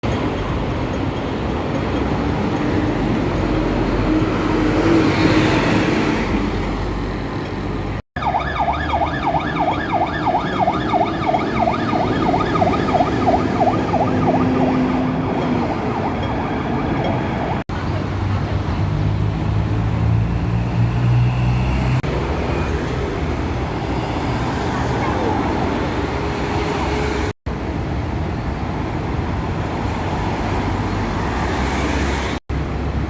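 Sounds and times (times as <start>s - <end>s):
road traffic: 0.0s - 33.0s
siren yelping: 8.2s - 17.6s.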